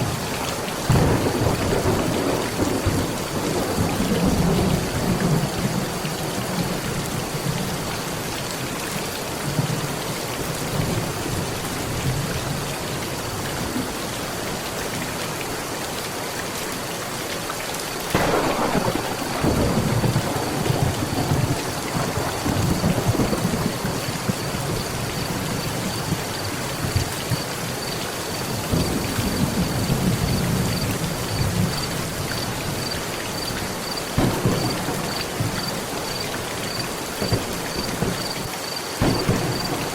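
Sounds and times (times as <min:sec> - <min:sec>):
heavy rain on a metal roof: 0:00.0 - 0:39.9
thunder: 0:00.9 - 0:06.9, 0:18.1 - 0:27.5, 0:28.6 - 0:33.5, 0:34.2 - 0:38.4, 0:39.0 - 0:39.9.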